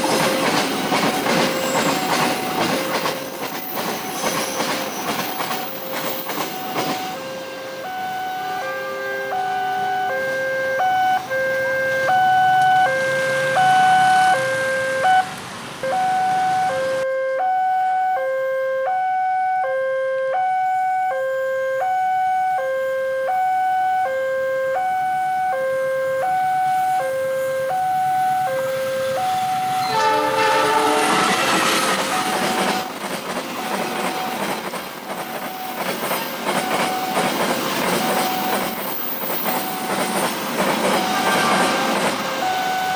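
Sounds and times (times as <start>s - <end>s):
train wheels passing: 0.0s - 10.4s, 21.7s - 42.9s
level crossing two-tone alarm: 0.1s - 39.0s, 42.4s - 42.9s
train horn: 7.0s - 15.2s, 24.1s - 34.0s, 41.0s - 42.9s.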